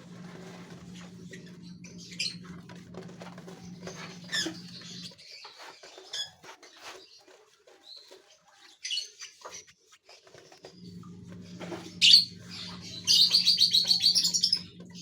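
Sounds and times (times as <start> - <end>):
finches chirping: 12.0 - 15.0.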